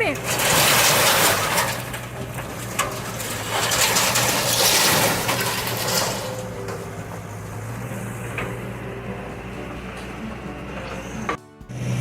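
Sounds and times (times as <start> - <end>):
diesel engine running: 0.0 - 12.0
clattering clicks: 0.2 - 8.8.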